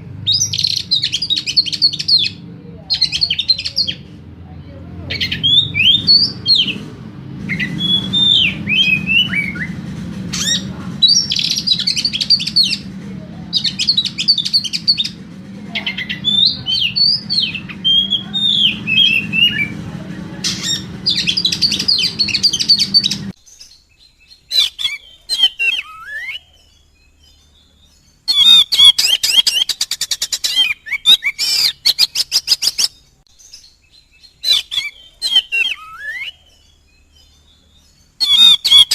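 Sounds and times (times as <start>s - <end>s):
steady low hum: 0.0s - 23.4s
songbird singing: 0.0s - 38.9s.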